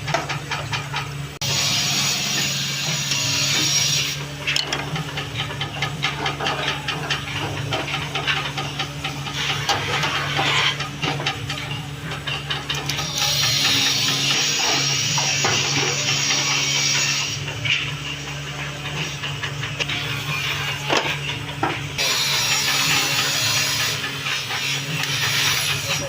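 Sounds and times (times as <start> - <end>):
woodworking machine humming: 0.0 - 26.0
tool scraping and ticking: 0.1 - 26.0
tool hissing on wood: 22.0 - 26.0.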